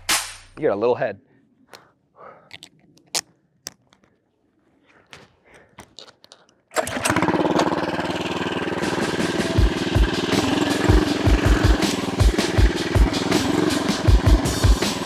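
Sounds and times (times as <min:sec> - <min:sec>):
small engine starting and running: 0:06.7 - 0:15.0.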